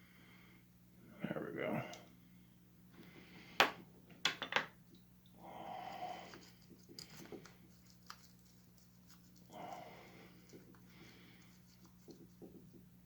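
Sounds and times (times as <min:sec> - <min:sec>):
low electrical hum: 0:00.0 - 0:13.0
soft rustle: 0:06.2 - 0:13.0.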